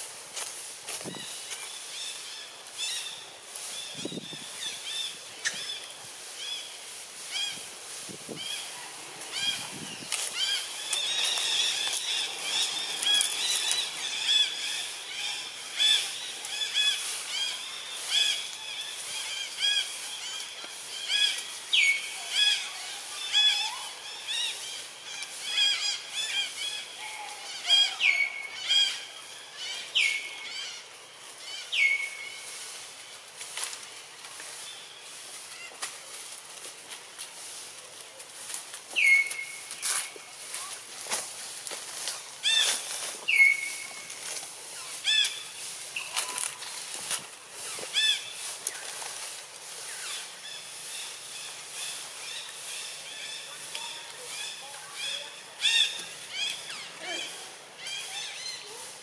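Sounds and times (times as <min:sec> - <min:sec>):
birds chirping: 0:01.0 - 0:33.2, 0:41.9 - 0:59.0.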